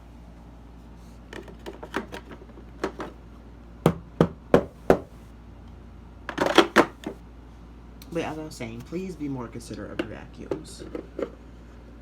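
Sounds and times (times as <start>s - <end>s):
plastic knocking on hard surface: 3.9s - 5.1s.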